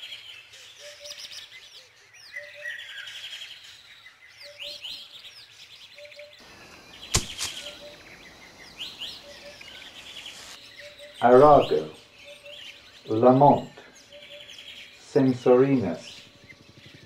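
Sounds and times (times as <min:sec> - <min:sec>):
songbirds singing: 0:00.0 - 0:17.0
sharp click: 0:07.1 - 0:07.9.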